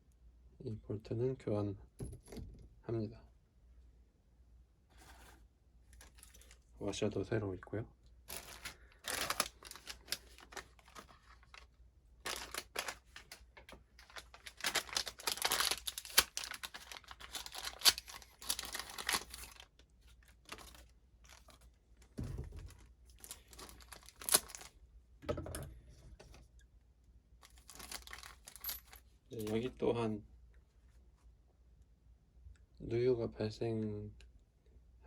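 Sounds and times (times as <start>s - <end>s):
plastic packaging crinkling and tearing: 8.3s - 19.7s, 20.3s - 21.6s, 23.2s - 24.7s, 27.5s - 29.0s.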